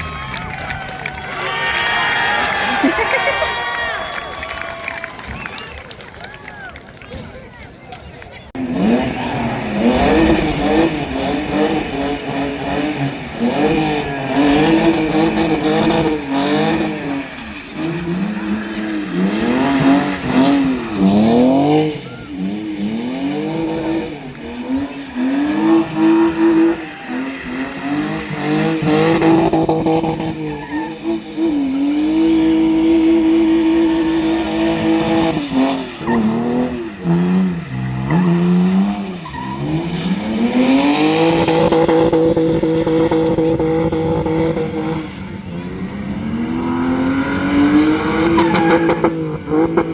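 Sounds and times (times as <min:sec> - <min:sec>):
car engine revving: 0:08.5 - 0:49.9
tyres squealing: 0:24.6 - 0:41.0, 0:47.4 - 0:49.7.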